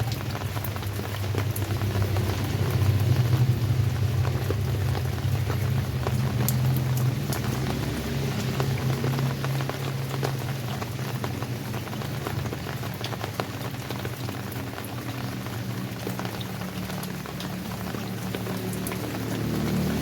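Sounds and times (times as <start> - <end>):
rain pattering on surfaces: 0.0 - 20.0
low rumble: 1.5 - 8.4.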